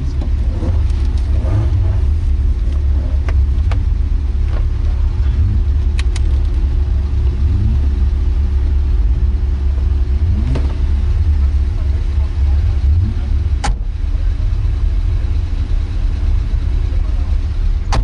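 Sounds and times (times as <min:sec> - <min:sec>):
car engine low rumble: 0:00.0 - 0:18.0
sharp clicks: 0:05.9 - 0:06.6.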